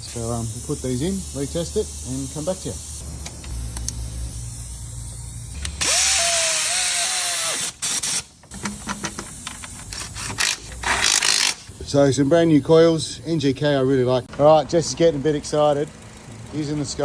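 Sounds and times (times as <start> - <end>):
power drill whining: 5.6 - 8.3.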